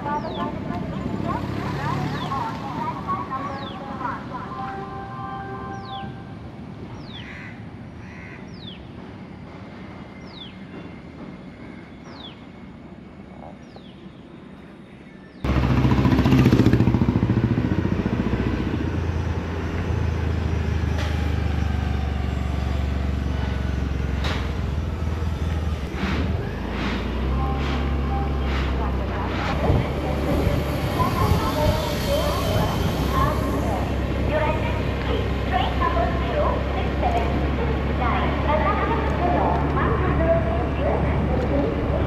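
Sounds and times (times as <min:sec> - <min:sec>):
passing train drone: 0:00.0 - 0:42.0
train clicks: 0:25.5 - 0:30.4, 0:38.6 - 0:40.0.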